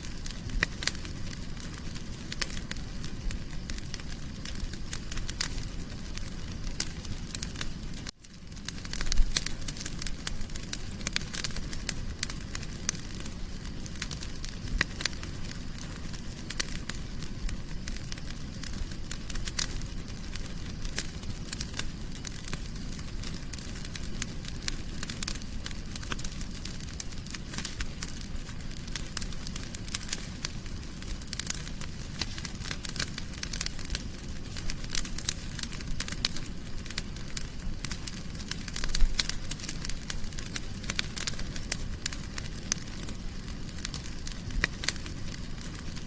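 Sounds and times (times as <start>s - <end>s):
fire crackling in a fireplace: 0.0s - 46.0s.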